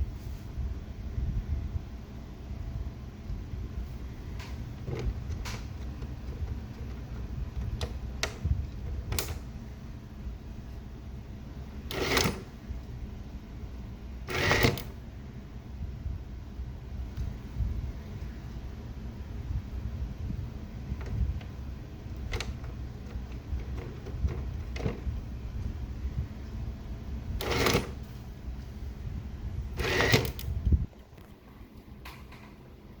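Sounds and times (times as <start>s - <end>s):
motor rumbling: 3.1s - 31.9s
mechanical clicks and knocks: 4.4s - 9.5s, 11.9s - 12.5s, 21.0s - 25.1s, 27.4s - 28.1s, 29.8s - 30.6s.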